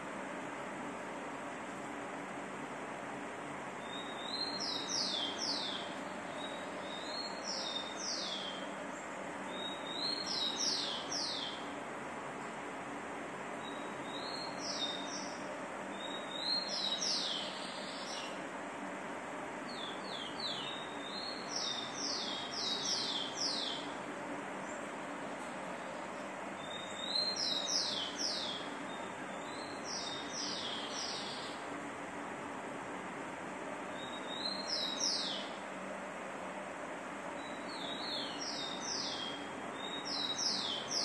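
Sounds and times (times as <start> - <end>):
steady background hiss: 0.0 - 41.0
songbird singing: 3.8 - 11.8, 13.5 - 18.5, 19.6 - 31.8, 33.9 - 35.8, 37.2 - 41.0.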